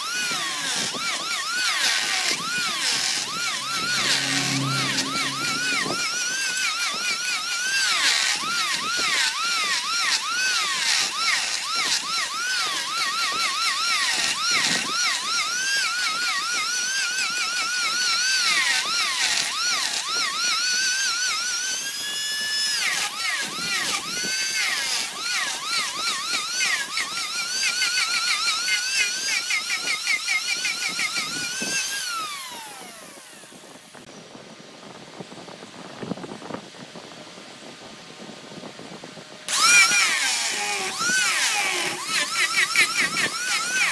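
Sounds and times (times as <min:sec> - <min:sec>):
power tool whining: 0:00.0 - 0:06.6, 0:39.5 - 0:43.9.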